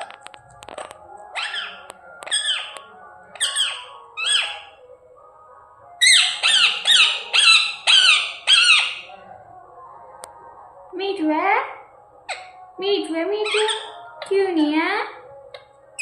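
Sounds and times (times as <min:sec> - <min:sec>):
parrot squawking: 0:01.3 - 0:04.8, 0:06.0 - 0:09.1, 0:12.3 - 0:12.6, 0:13.4 - 0:14.3.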